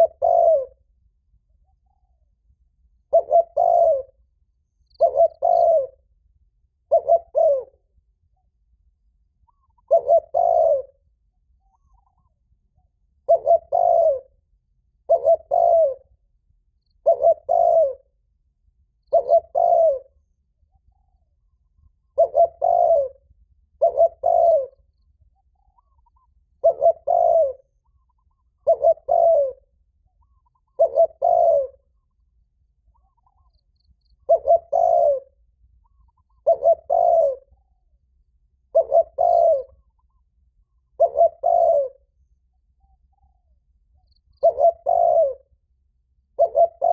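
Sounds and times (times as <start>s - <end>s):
dove cooing: 0.0s - 0.9s, 3.1s - 4.2s, 4.9s - 6.1s, 6.8s - 7.8s, 9.5s - 11.0s, 13.2s - 14.4s, 15.1s - 16.2s, 17.0s - 18.1s, 19.1s - 20.2s, 21.0s - 24.9s, 25.6s - 32.2s, 34.1s - 37.9s, 38.6s - 42.1s, 42.9s - 45.6s, 46.3s - 46.9s.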